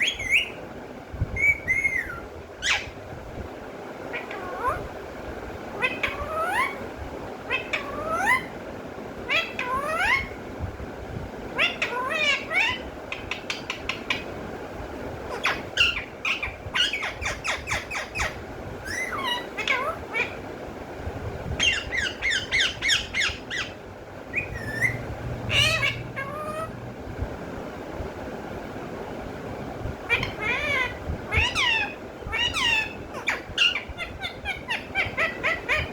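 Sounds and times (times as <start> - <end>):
parrot squawking and chattering: 0.0 - 0.6, 1.4 - 3.0, 4.1 - 4.9, 5.7 - 6.9, 7.5 - 8.6, 9.2 - 10.4, 11.5 - 14.3, 15.3 - 20.5, 21.6 - 26.8, 30.0 - 35.9.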